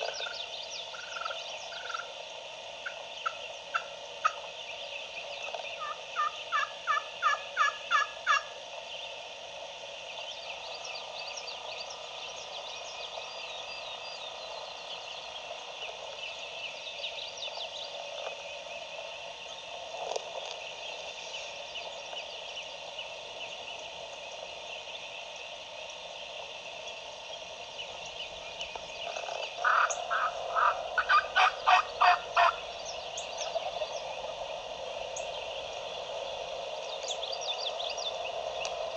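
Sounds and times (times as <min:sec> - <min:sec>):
small songbirds chattering: 0:00.0 - 0:38.9
wild turkey yelps: 0:00.9 - 0:02.1, 0:05.8 - 0:08.6, 0:29.6 - 0:32.6.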